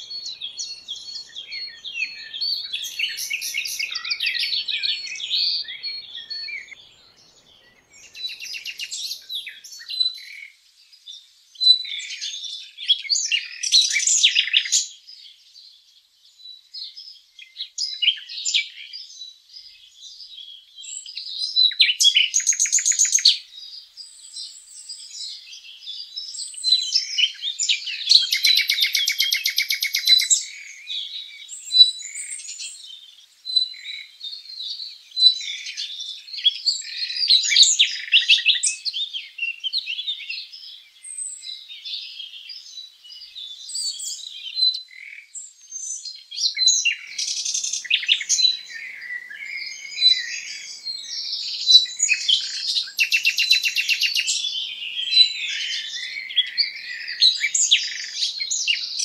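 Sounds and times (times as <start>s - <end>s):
bird trills: 0.0s - 9.6s, 46.9s - 59.0s
songbirds chirping and singing: 0.0s - 59.0s.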